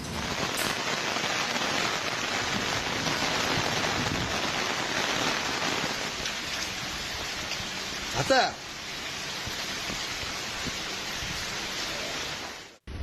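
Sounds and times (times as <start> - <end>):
heavy rain on hard surfaces: 0.0 - 13.0.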